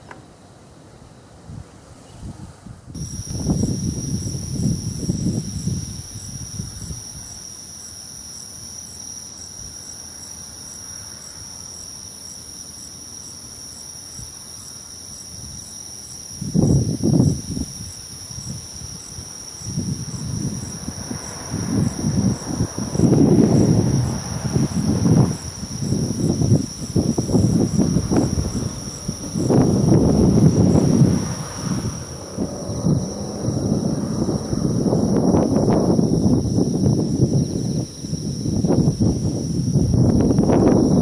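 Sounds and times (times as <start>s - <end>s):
wind buffeting microphone: 1.4s - 7.6s, 15.3s - 41.0s
insects trilling: 3.0s - 41.0s
pulsing insect chirp: 3.0s - 41.0s.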